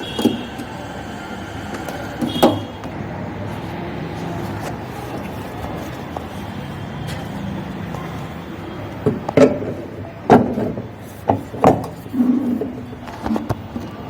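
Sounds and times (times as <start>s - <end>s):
mechanical hum: 0.0s - 14.0s
sharp knocks and clatters: 9.0s - 12.6s.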